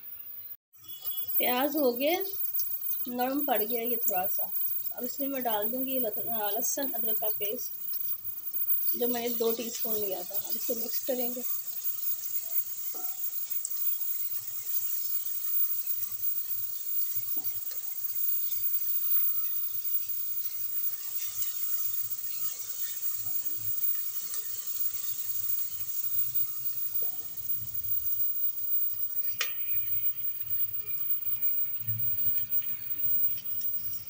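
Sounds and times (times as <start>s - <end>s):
onions sizzling in a pot: 0.0s - 34.0s
spatula stirring: 19.4s - 27.4s.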